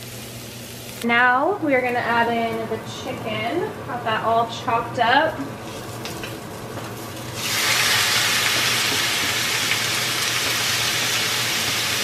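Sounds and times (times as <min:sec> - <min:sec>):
meat sizzling in a hot pan: 0:00.0 - 0:01.0, 0:05.6 - 0:12.0.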